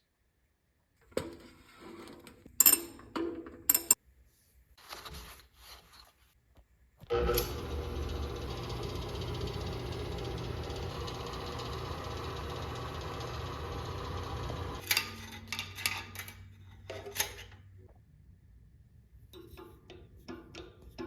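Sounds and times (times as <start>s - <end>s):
band saw motor hum: 7.1s - 14.8s.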